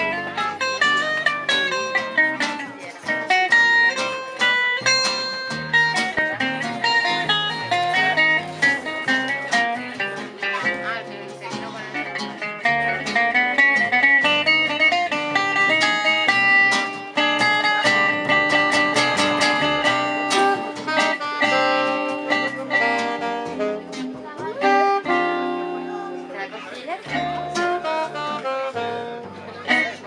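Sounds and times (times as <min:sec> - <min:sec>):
guitars plucking quick notes: 0:00.0 - 0:30.0
gypsy jazz band playing: 0:00.0 - 0:30.0.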